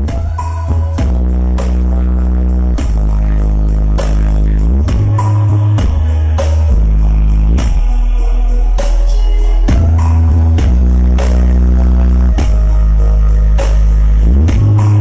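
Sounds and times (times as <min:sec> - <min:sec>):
bass-heavy music: 0:00.0 - 0:15.0
drum hits: 0:04.9 - 0:06.1.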